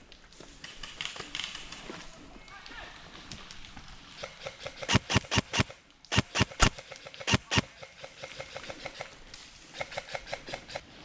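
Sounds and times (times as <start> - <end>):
airsoft rifle shots: 4.8 - 7.8.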